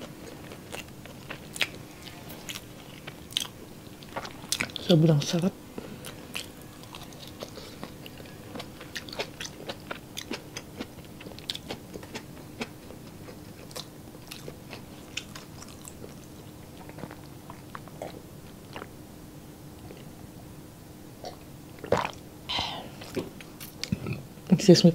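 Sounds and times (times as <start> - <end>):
person chewing food: 0.0 - 4.8, 5.8 - 19.0, 19.8 - 20.2.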